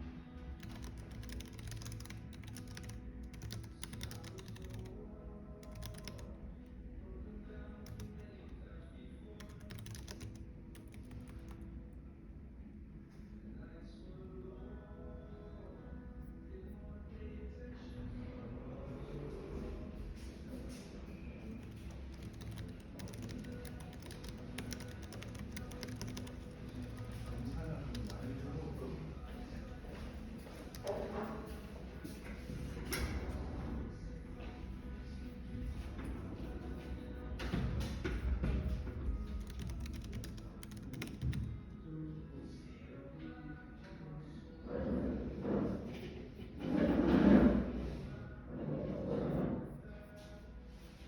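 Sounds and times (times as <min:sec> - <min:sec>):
low cafe rumble: 0:00.0 - 0:51.0
soft background music: 0:00.0 - 0:51.0
typing on computer keyboard: 0:00.6 - 0:05.0, 0:05.6 - 0:06.4, 0:07.8 - 0:08.3, 0:09.4 - 0:11.6, 0:21.4 - 0:28.5, 0:30.5 - 0:31.3, 0:37.4 - 0:41.5.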